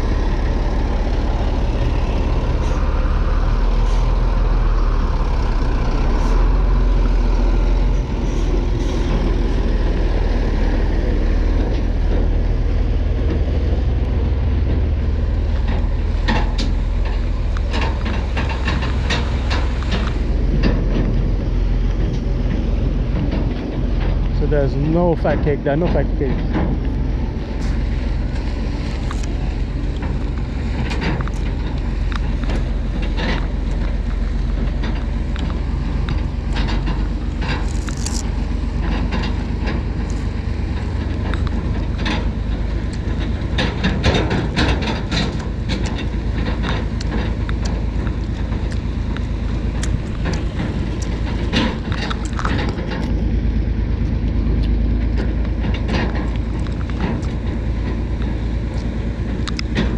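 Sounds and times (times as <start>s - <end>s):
wind buffeting microphone: 0.0s - 59.9s
bicycle clicks and rattles: 30.0s - 42.3s, 42.9s - 53.2s.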